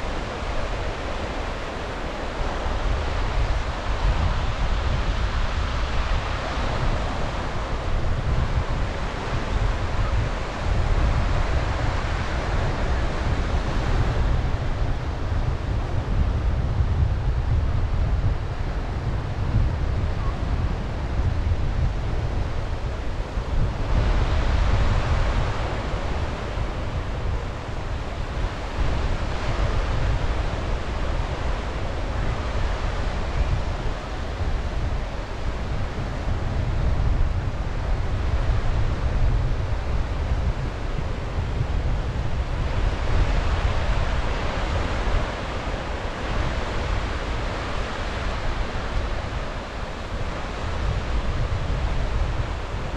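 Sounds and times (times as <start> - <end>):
wind buffeting microphone: 0.0 - 52.9
sea waves breaking on shore: 21.6 - 52.9.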